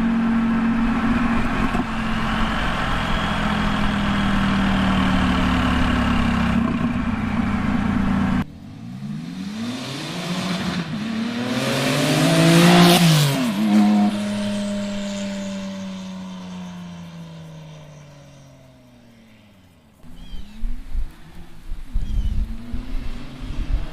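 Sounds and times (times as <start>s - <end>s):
sports car engine fly-by: 0.0s - 23.9s.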